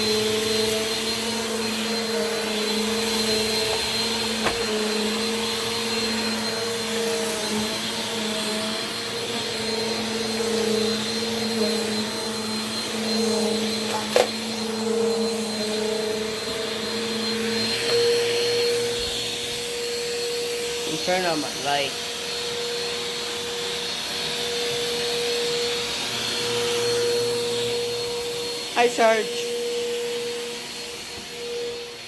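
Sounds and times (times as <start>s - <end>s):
vacuum cleaner running on carpet: 0.0s - 32.0s.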